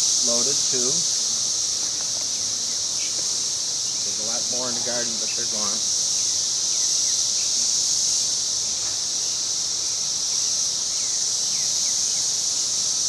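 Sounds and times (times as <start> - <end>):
cicadas droning: 0.0 - 13.0.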